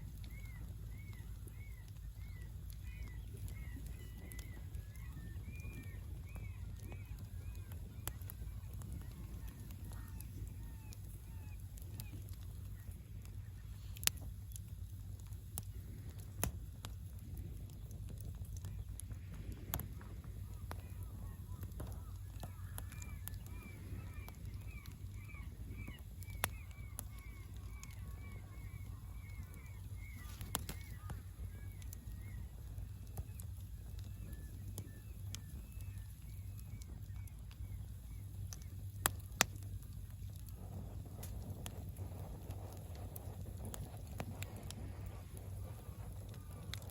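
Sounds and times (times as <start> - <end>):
burning wood popping: 0.0 - 46.9
low fire rumble: 0.0 - 46.9
bird chirping: 20.6 - 39.2.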